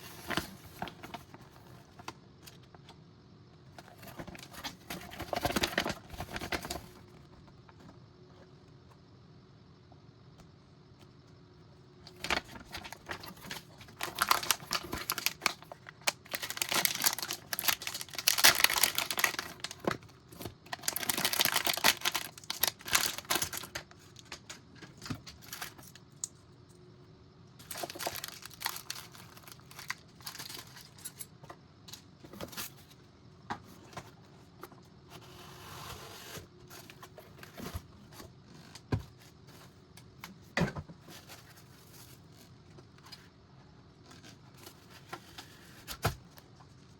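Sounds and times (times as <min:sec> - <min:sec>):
plastic bags crinkling and tearing: 0:12.1 - 0:24.3, 0:25.0 - 0:26.0, 0:27.6 - 0:31.0.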